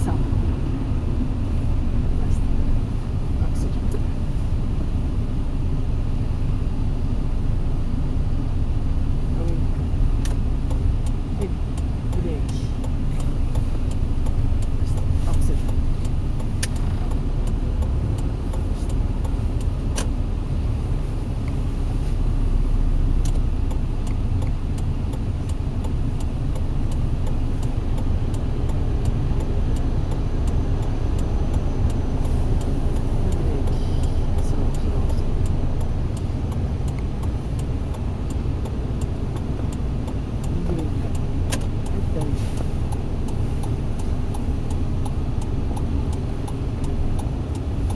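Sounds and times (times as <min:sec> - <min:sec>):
car engine and tyre rumble: 0:00.0 - 0:47.9
sharp click: 0:12.8 - 0:20.2.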